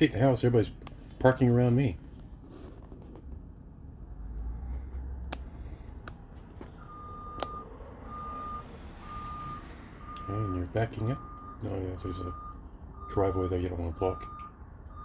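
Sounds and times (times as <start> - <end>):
bus engine rumble: 0.0 - 15.0
reversing alarm beeping: 6.8 - 15.0.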